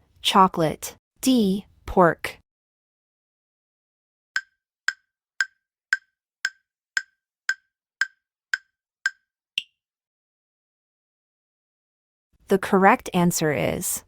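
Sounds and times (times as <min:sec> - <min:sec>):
wood-block timer ticks: 0:04.4 - 0:09.7.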